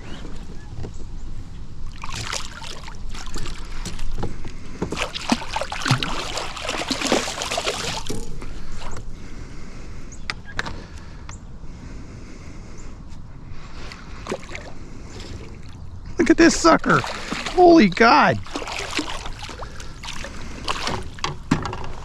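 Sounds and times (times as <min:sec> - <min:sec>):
fish thrashing and splashing: 0:01.9 - 0:04.1, 0:04.9 - 0:08.4, 0:14.2 - 0:15.8, 0:16.5 - 0:21.5.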